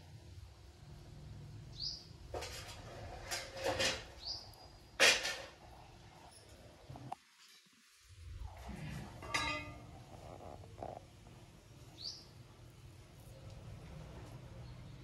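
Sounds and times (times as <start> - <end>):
bird chirping: 1.7 - 2.1, 4.1 - 5.0, 11.8 - 12.4
faint low hum: 8.0 - 15.0.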